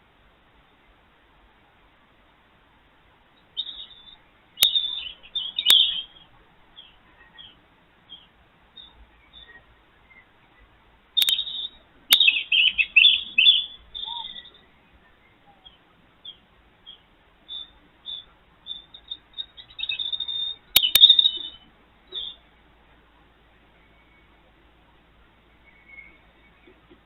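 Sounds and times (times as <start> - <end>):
small birds chirping: 3.4 - 27.0
sharp clicks: 4.6 - 5.0, 11.2 - 12.4, 20.7 - 21.5.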